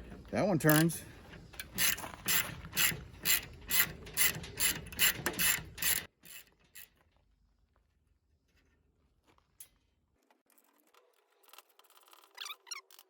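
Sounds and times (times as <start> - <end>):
ratchet wrench clicking: 1.5 - 6.9.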